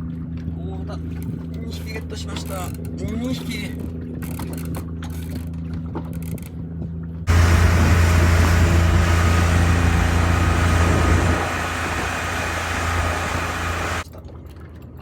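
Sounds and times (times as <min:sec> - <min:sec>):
boat engine running: 0:07.3 - 0:14.0.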